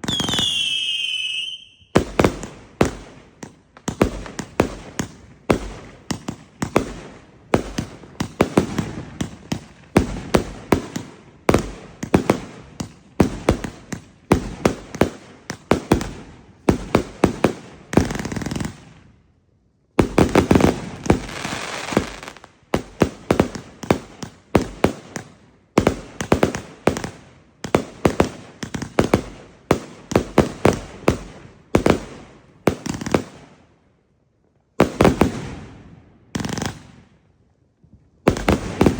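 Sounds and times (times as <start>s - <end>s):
fireworks cake firing: 38.3s - 38.9s.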